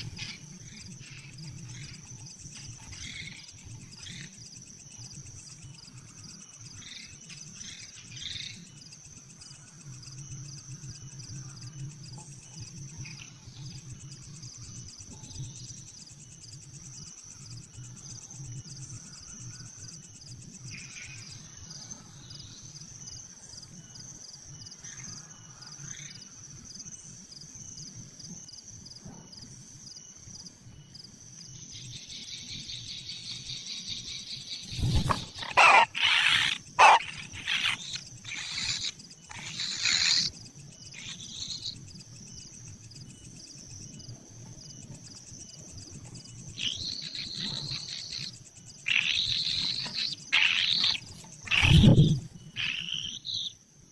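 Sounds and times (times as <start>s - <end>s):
insects trilling: 0.0s - 53.9s
harsh rasping bird calls: 34.6s - 41.8s, 46.6s - 53.5s.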